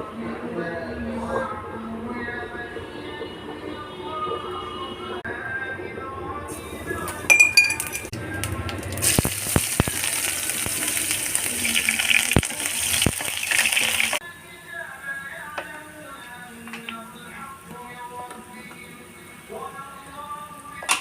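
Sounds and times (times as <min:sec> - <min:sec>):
utensil clinking on cookware: 0:07.2 - 0:08.2
food sizzling in a pan: 0:08.4 - 0:21.0.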